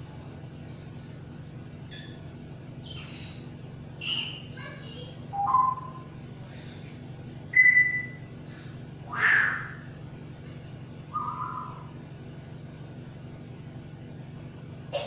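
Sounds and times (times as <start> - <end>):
bird chirping and whistling: 2.8 - 3.4, 4.0 - 4.6, 5.3 - 6.1, 7.5 - 8.3, 9.1 - 9.9, 11.1 - 12.0.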